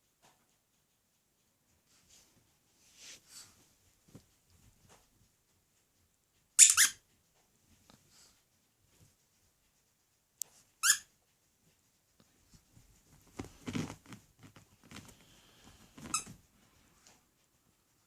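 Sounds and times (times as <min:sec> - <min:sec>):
rustling and soft knocks of toy: 0:01.7 - 0:17.5
squeaky pet toy squeaking: 0:06.6 - 0:07.1, 0:10.8 - 0:11.1, 0:16.1 - 0:16.4.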